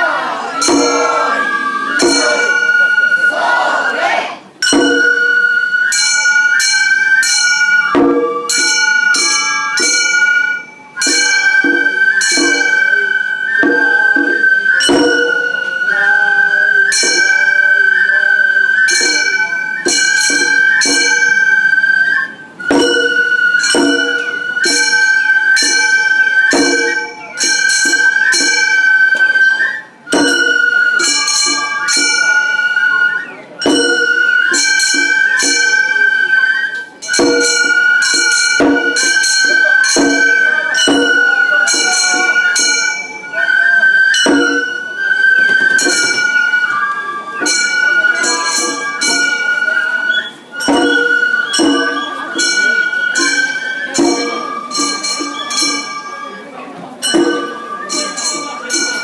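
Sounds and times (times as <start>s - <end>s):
bamboo flute long notes: 0.0s - 59.0s
drum beats: 0.4s - 3.1s, 4.0s - 6.1s, 7.2s - 10.3s, 13.6s - 15.8s, 22.6s - 28.6s, 30.1s - 32.2s, 33.6s - 35.7s, 37.0s - 43.2s, 44.1s - 49.6s, 50.5s - 56.1s, 57.0s - 59.0s
small brass hand gongs ringing: 0.6s - 1.4s, 2.0s - 3.0s, 4.6s - 15.8s, 18.7s - 22.0s, 22.6s - 32.8s, 33.6s - 36.4s, 37.0s - 43.3s, 44.0s - 45.0s, 47.4s - 59.0s.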